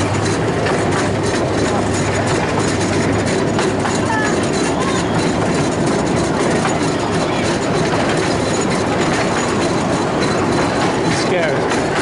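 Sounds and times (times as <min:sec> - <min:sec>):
train wheels running on rails: 0:00.0 - 0:12.0.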